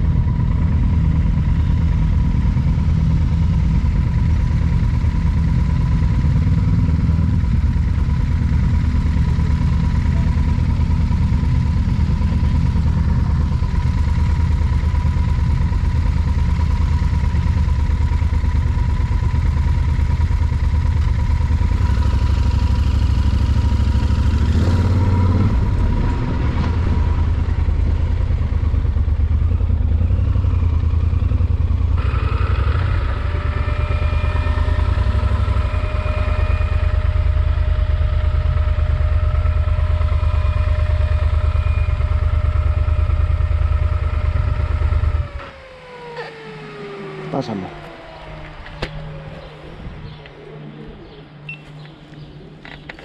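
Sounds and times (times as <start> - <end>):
motorcycle engine rumble: 0.0 - 53.0
thin steady whine: 27.1 - 53.0.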